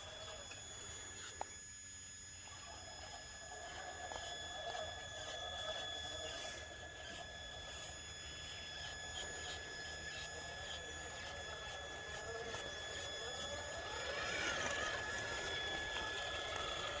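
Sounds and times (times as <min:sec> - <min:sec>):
toy truck motor whining: 0:00.0 - 0:17.0.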